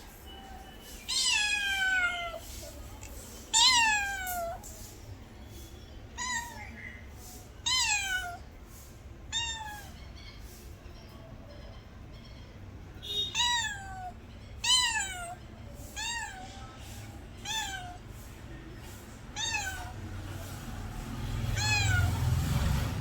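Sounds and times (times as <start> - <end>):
cat meowing: 1.1 - 2.6, 3.5 - 4.7, 6.2 - 6.8, 7.6 - 8.5, 9.3 - 10.0, 13.2 - 16.8, 17.4 - 18.0, 19.3 - 20.2, 21.4 - 22.9.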